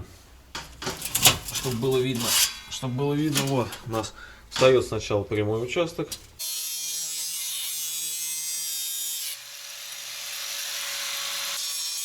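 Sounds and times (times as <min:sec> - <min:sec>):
power tool cutting metal pipe: 0:06.4 - 0:12.0.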